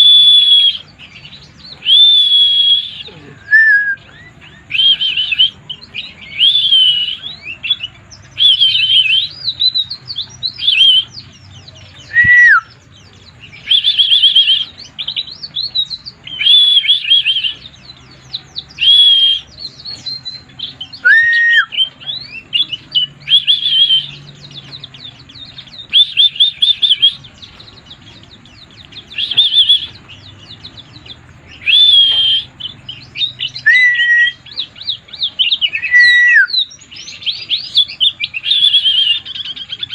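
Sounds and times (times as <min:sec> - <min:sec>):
bird warbling chirps: 0:00.0 - 0:39.9.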